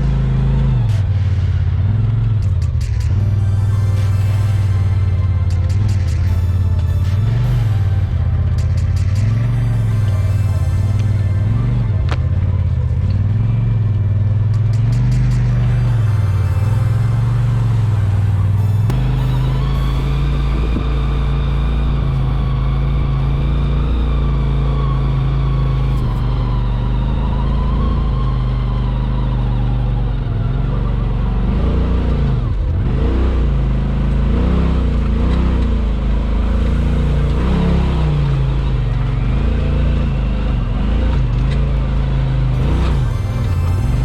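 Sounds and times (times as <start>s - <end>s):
off-road vehicle engine revving: 0.0s - 3.4s, 4.0s - 44.0s.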